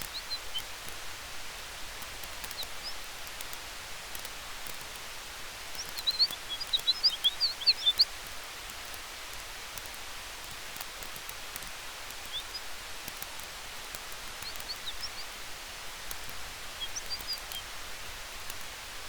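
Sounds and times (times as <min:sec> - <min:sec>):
campfire crackling: 0:00.0 - 0:19.0
wind hiss: 0:00.0 - 0:19.0
high bird chirps: 0:05.8 - 0:08.1, 0:14.4 - 0:15.4, 0:16.7 - 0:17.6.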